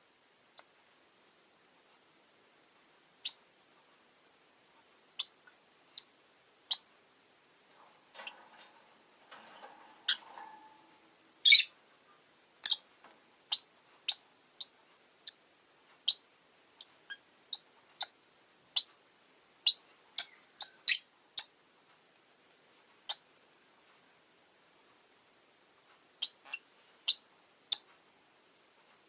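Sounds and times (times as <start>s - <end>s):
lovebirds chirping: 3.2s - 3.4s, 5.2s - 5.4s, 10.0s - 10.4s, 11.4s - 11.8s, 12.6s - 12.9s, 13.5s - 15.4s, 16.0s - 16.2s, 16.8s - 18.9s, 19.6s - 21.5s, 23.0s - 23.2s, 26.2s - 27.8s.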